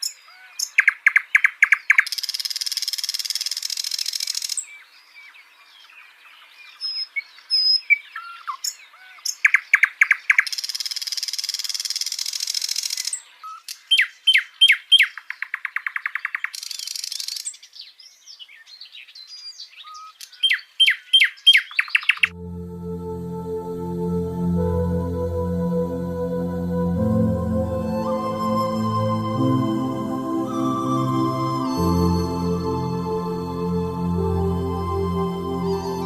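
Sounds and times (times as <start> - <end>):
songbird singing trills: 0.0 - 22.4.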